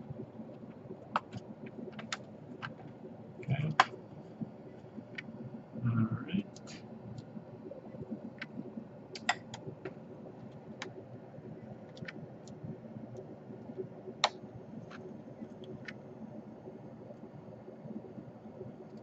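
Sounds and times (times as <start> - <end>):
low steady hum: 0.0 - 19.0
laptop parts clicking: 9.2 - 9.6.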